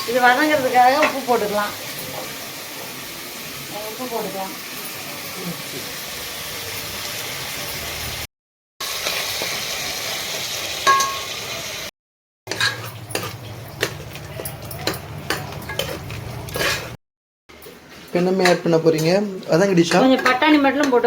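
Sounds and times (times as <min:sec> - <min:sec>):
food sizzling in oil: 0:00.0 - 0:11.9, 0:12.5 - 0:21.0
metal spoon clinking on pot: 0:10.9 - 0:11.2, 0:12.5 - 0:16.9, 0:18.1 - 0:21.0
spoon scraping pan: 0:12.5 - 0:17.0, 0:17.7 - 0:21.0.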